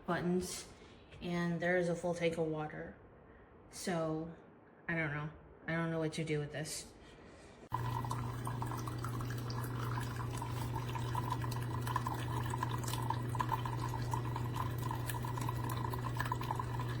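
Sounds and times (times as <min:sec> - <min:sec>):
coffee maker humming: 0:07.7 - 0:17.0
watery gurgle: 0:07.7 - 0:17.0.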